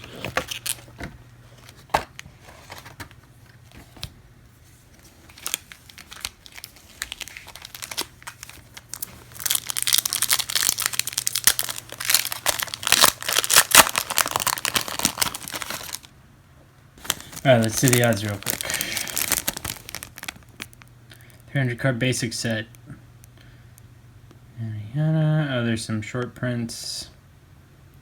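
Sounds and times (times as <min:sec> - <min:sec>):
wrapper crinkling and tearing: 0:00.0 - 0:00.9, 0:05.0 - 0:16.1, 0:17.0 - 0:21.5.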